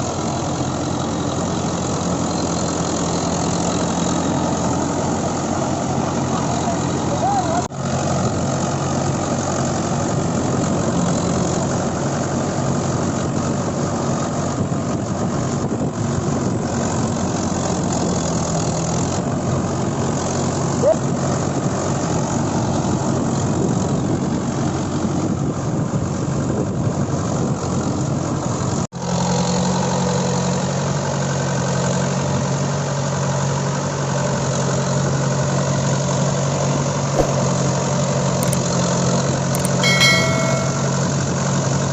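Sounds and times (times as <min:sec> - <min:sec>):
tractor diesel engine running: 0:00.0 - 0:28.8.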